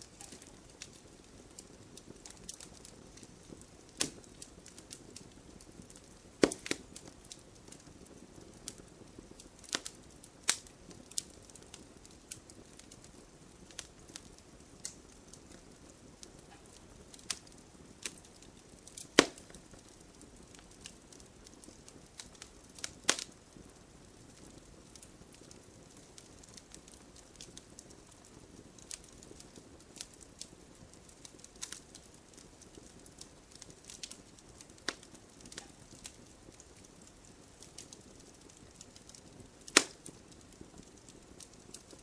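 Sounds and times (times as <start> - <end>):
faint steady hiss: 0.0 - 42.0
wood fire crackling: 0.0 - 42.0.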